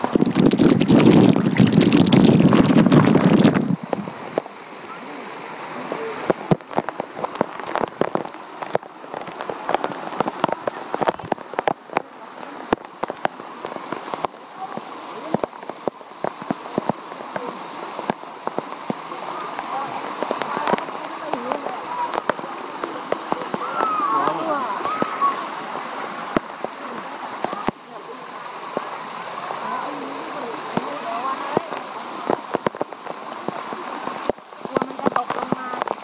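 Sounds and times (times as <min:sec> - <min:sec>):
wind rumble on microphone: 0:00.0 - 0:04.3
water drops splashing: 0:00.0 - 0:04.5
waterfall splashing and pattering: 0:00.0 - 0:36.0.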